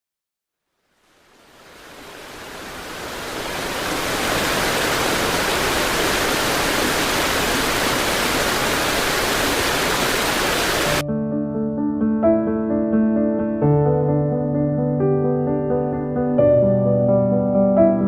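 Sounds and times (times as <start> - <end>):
heavy rain: 1.0 - 11.0.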